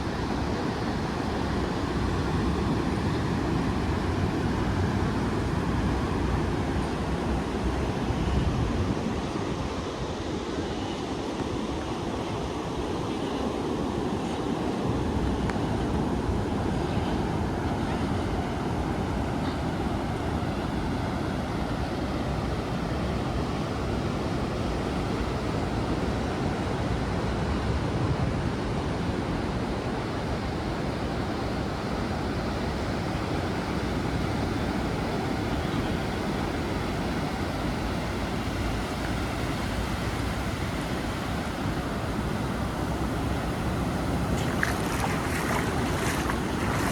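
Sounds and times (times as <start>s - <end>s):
ocean surf breaking on beach: 13.7s - 46.9s
wind buffeting microphone: 21.2s - 46.9s.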